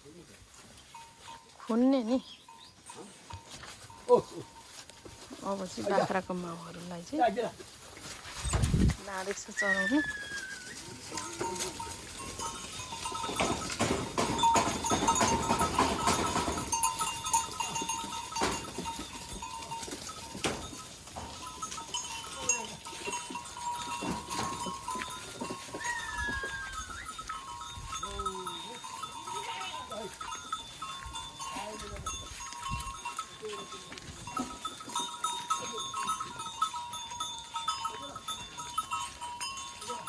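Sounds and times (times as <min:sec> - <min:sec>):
goat bells ringing: 0:00.0 - 0:40.0
hooves clattering: 0:00.0 - 0:40.0
goats bleating: 0:21.2 - 0:27.5, 0:28.2 - 0:30.6.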